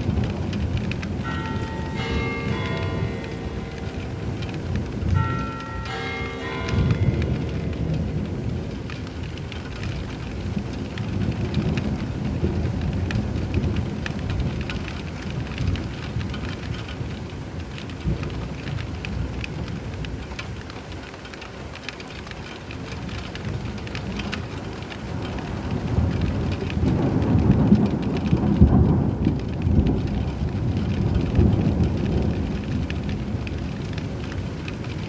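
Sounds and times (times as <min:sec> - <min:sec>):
rolling thunder: 0:00.0 - 0:20.6, 0:22.9 - 0:35.0
rain falling: 0:00.0 - 0:35.0
bell chiming: 0:01.2 - 0:08.2.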